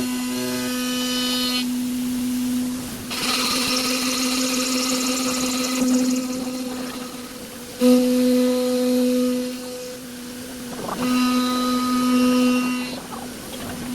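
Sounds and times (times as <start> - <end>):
machining center humming: 2.7 - 13.9
tool grinding glass: 3.1 - 7.9.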